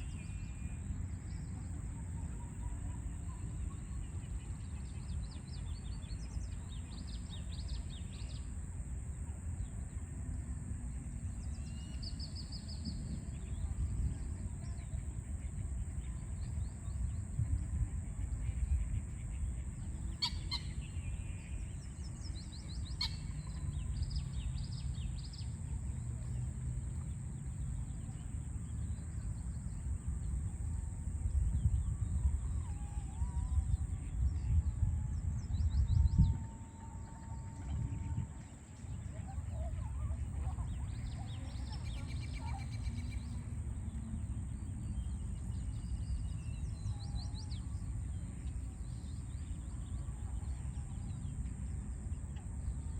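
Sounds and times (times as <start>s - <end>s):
constant high hiss: 0.0s - 52.9s
small birds chirping: 18.2s - 26.1s.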